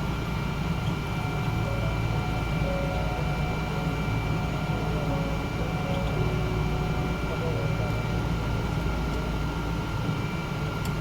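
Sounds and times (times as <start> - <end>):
aircraft cabin low rumble: 0.0 - 11.0
thin steady whine: 0.0 - 11.0.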